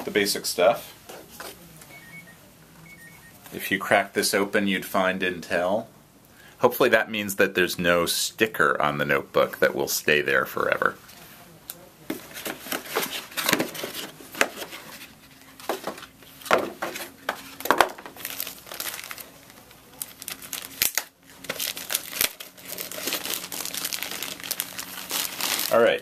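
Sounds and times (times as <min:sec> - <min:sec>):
packaging crinkling and rustling: 0:12.1 - 0:26.0.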